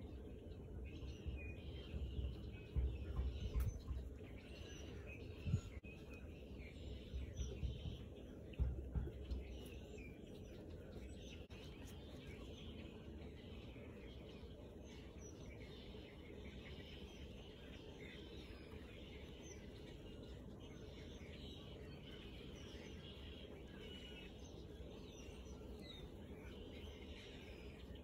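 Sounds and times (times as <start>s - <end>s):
background rumble and hiss: 0.0s - 28.0s
small birds chirping: 0.0s - 28.0s.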